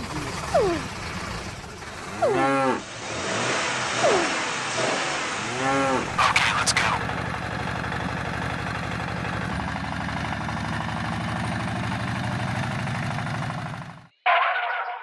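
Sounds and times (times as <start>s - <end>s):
tractor engine idling: 0.0s - 3.0s, 6.0s - 14.1s.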